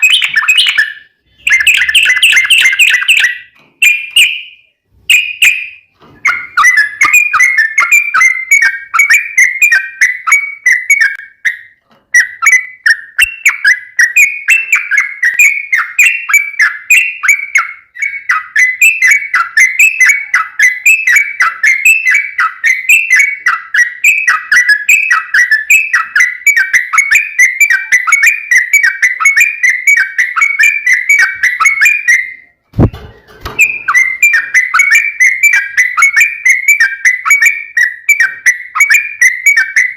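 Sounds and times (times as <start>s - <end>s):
bird bubbly chattering song: 0.0s - 11.6s
low thud: 32.8s - 33.7s.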